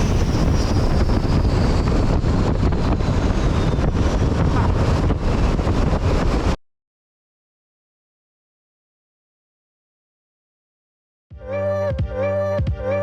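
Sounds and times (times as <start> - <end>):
faint high whine: 0.0 - 2.1
boat engine running: 0.0 - 2.4
wind buffeting microphone: 0.0 - 6.6.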